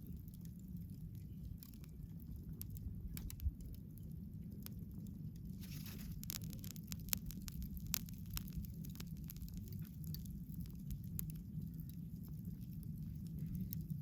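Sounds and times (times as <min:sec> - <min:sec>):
bonfire crackling and popping: 0:00.0 - 0:14.0
low fire rumble: 0:00.0 - 0:14.0.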